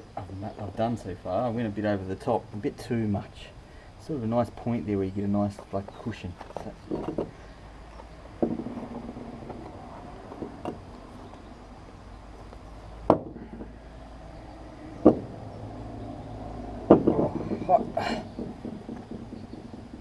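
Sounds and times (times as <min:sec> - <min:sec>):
short sharp knocks: 0:08.4 - 0:10.8, 0:15.0 - 0:15.4, 0:16.7 - 0:20.0.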